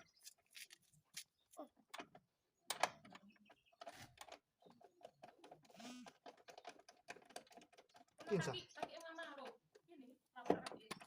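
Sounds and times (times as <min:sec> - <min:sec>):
faint irregular clicks and knocks: 0:01.6 - 0:11.0.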